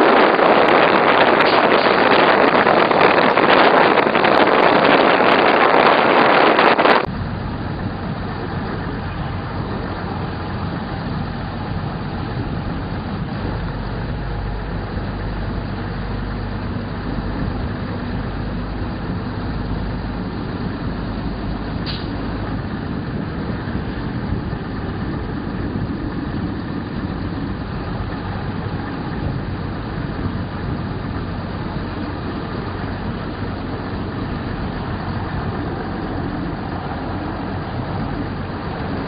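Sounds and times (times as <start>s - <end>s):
train rumble inside carriage: 0.0s - 39.0s
wind rushing past train window: 0.0s - 39.0s.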